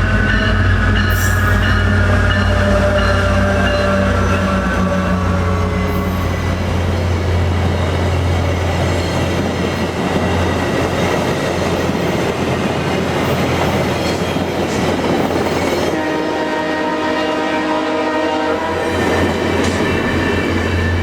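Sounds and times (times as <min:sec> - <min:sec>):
train horn: 0:00.0 - 0:07.7, 0:15.7 - 0:21.0
train wheels clacking on rails: 0:00.0 - 0:16.2, 0:18.8 - 0:21.0
diesel locomotive drone: 0:00.0 - 0:21.0.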